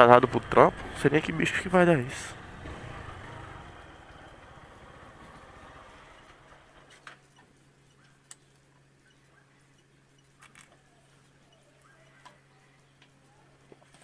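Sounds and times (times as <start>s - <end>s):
small motorcycle engine: 0.0s - 7.2s
faint steady hum: 0.0s - 14.0s.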